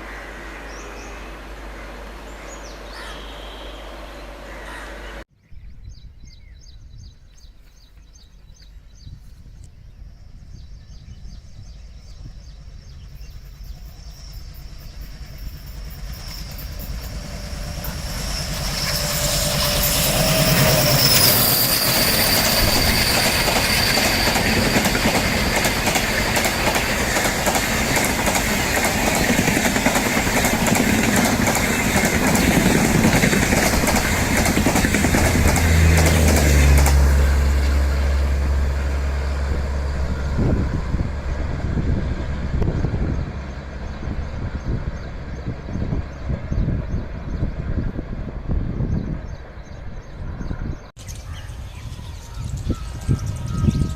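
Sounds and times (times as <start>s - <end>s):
train wheels clickety-clack: 13.2s - 37.8s.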